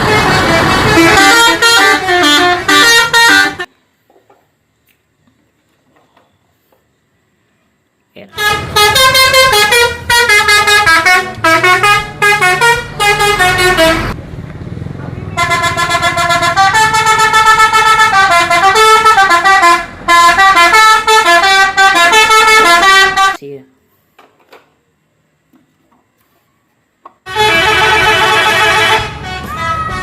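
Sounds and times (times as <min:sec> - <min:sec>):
musical bus horn tune: 0:00.0 - 0:03.7, 0:08.3 - 0:14.2, 0:15.3 - 0:23.4, 0:27.2 - 0:30.0
low engine hum: 0:08.4 - 0:20.6.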